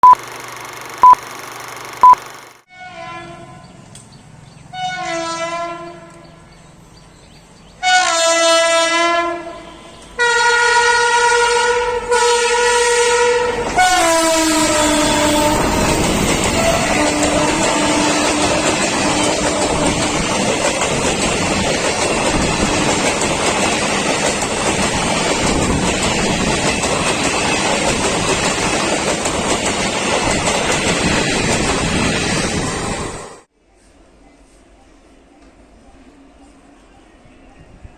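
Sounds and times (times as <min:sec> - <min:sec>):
locomotive air horn blasts: 0:02.7 - 0:03.7, 0:04.7 - 0:06.2, 0:07.8 - 0:15.8
train coaches rushing over rails: 0:11.0 - 0:33.5
wheels clickety-clack: 0:15.4 - 0:32.7.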